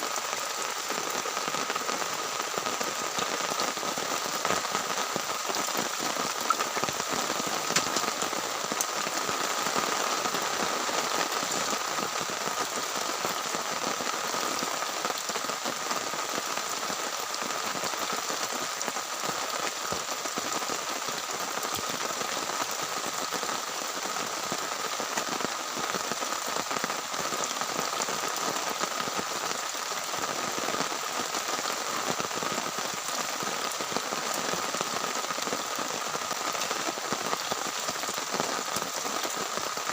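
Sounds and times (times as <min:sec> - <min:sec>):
heavy rain on a tent: 0:00.0 - 0:39.9.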